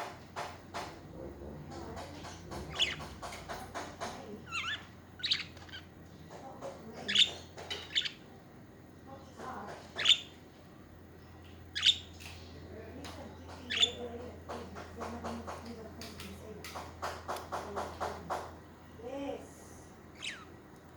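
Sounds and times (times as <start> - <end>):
soft bird chatter: 0.0 - 20.9
budgerigars chirping: 1.7 - 5.9, 6.9 - 8.2, 9.7 - 10.4, 11.4 - 12.4, 13.5 - 14.6, 20.2 - 20.5.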